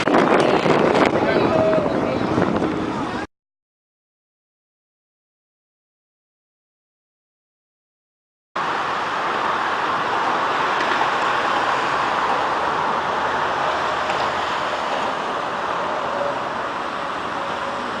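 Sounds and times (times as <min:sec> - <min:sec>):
bicycle road noise: 0:00.0 - 0:03.3, 0:08.6 - 0:18.0
wind noise: 0:00.0 - 0:03.3.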